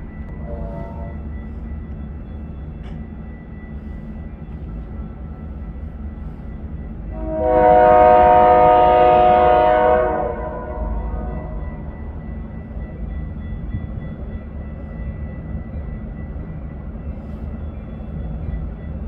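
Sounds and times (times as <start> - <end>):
train rumbling: 0.0 - 19.0
locomotive air horn blast: 0.4 - 1.2, 7.2 - 11.5.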